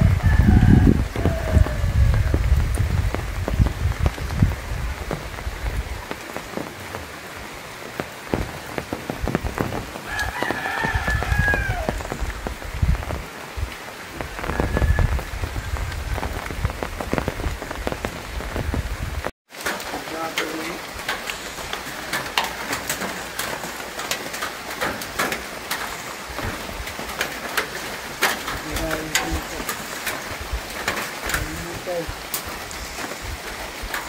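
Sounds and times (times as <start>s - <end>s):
rooster crowing: 0.0s - 2.4s, 10.0s - 12.1s
rain on foliage and metal roofs: 0.0s - 34.0s.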